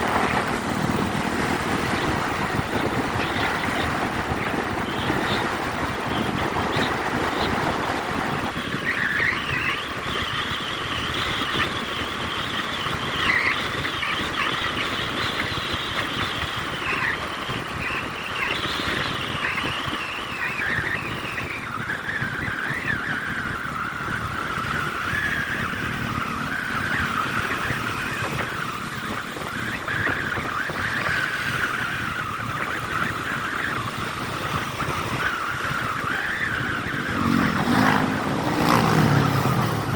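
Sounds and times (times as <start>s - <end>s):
motorcycle engine: 0.0s - 39.9s
wind noise on microphone: 0.0s - 39.9s.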